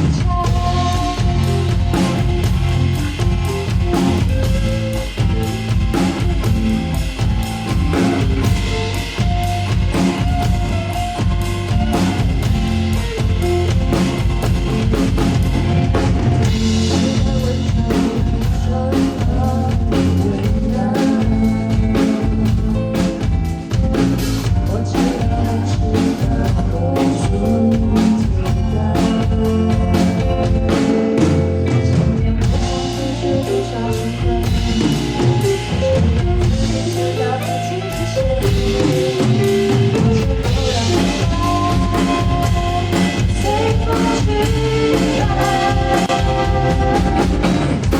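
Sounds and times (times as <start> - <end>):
pop-rock band music: 0.0 - 47.9.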